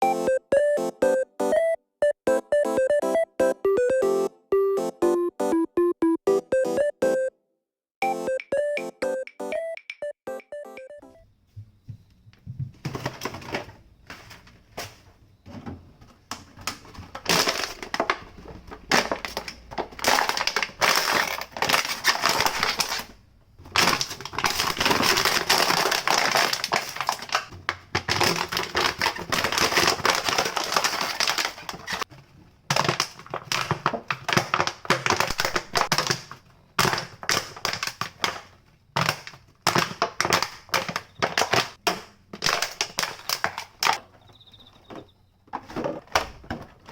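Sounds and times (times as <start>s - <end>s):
crunching and crackling clicks: 16.2s - 44.4s.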